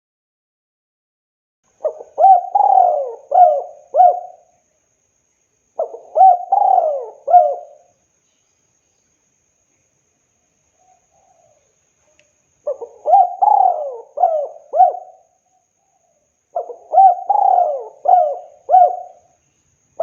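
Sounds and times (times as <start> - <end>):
dove cooing: 1.8 - 4.5, 5.8 - 7.9, 12.6 - 19.3.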